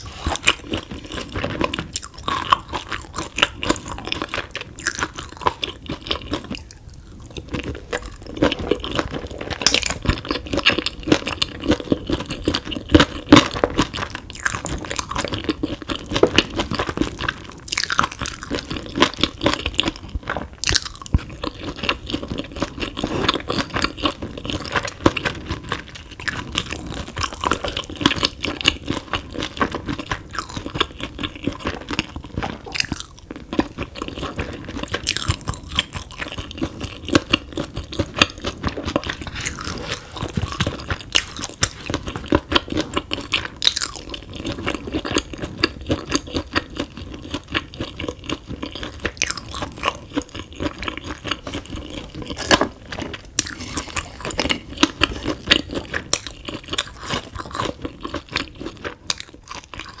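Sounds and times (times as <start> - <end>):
wet chewing: 0.0 - 60.0
sharp crunches: 39.3 - 42.0.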